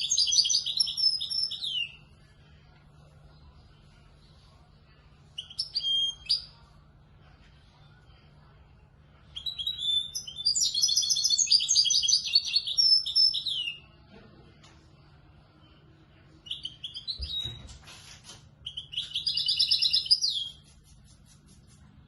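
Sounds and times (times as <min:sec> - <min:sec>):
goldfinch chirping and twittering: 0:00.0 - 0:02.0, 0:09.4 - 0:13.8, 0:18.7 - 0:20.6.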